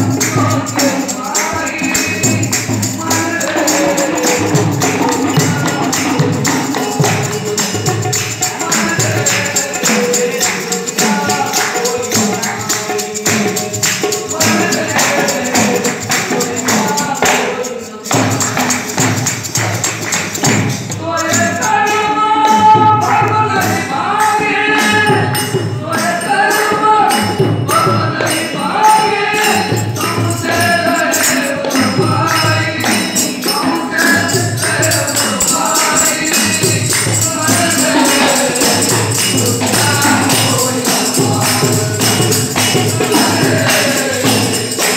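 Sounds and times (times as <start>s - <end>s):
jingling percussion beat: 0.0s - 44.9s
person singing: 21.0s - 44.9s.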